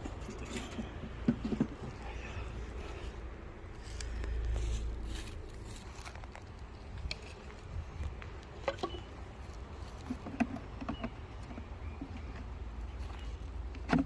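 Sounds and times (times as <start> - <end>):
wind rumble on microphone: 6.8 - 8.4.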